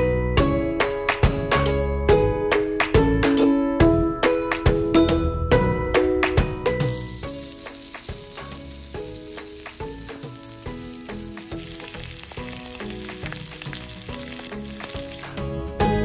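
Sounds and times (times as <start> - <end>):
soft music: 0.0 - 16.0
fish sizzling in hot oil: 6.8 - 15.5.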